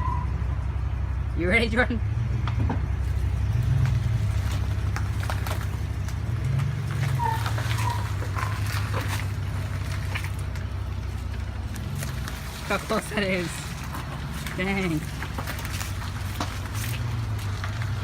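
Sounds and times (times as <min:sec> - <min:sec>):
truck engine running under load: 0:00.0 - 0:18.0
short squeaks: 0:06.9 - 0:09.3.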